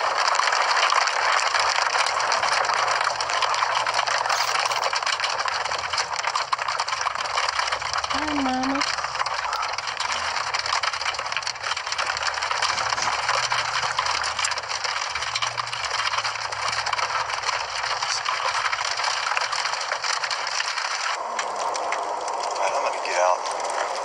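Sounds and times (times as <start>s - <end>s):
crackling rattle of small impacts: 0.0s - 24.0s
low storm rumble: 1.1s - 24.0s.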